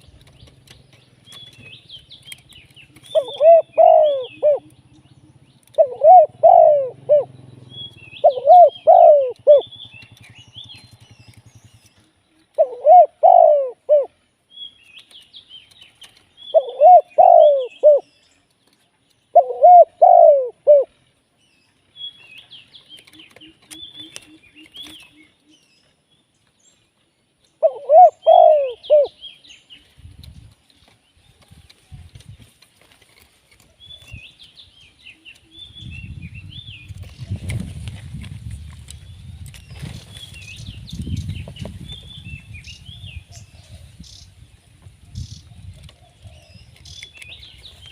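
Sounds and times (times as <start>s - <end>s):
small birds chirping: 0.0s - 47.9s
dove cooing: 2.9s - 10.2s, 12.4s - 14.2s, 16.5s - 18.1s, 19.3s - 21.0s, 27.6s - 29.2s.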